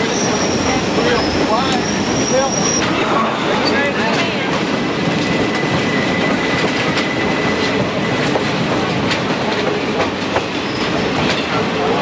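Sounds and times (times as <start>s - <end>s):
wheel squeal: 0.0s - 3.0s
train rumbling: 0.0s - 12.0s.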